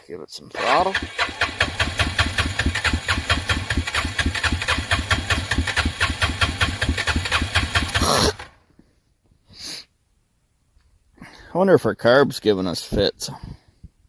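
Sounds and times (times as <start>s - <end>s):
engine idling: 0.6s - 8.5s.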